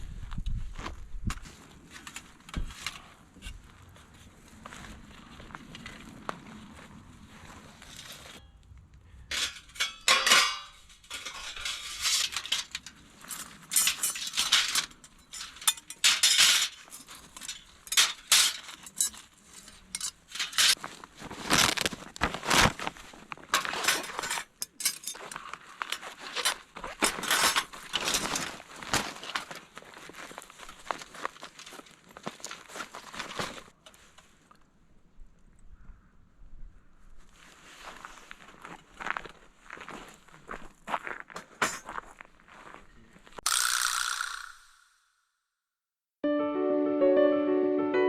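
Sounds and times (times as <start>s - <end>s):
metal gear clinking and rattling: 9.3s - 20.8s, 23.9s - 25.5s.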